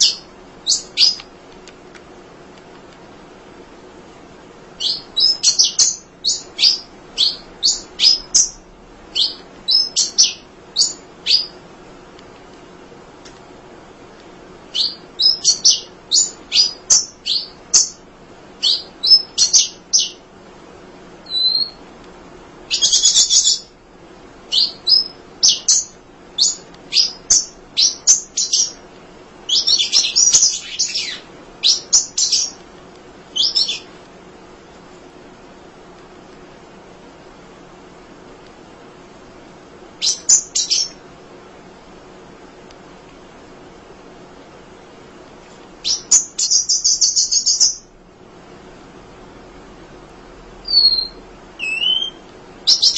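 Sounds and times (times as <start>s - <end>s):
small bird chirping: 0.0s - 1.3s, 4.8s - 11.6s, 14.7s - 20.3s, 21.2s - 21.8s, 22.7s - 23.8s, 24.5s - 28.8s, 29.4s - 32.6s, 33.3s - 33.9s, 40.0s - 41.0s, 45.8s - 47.9s, 50.6s - 52.9s.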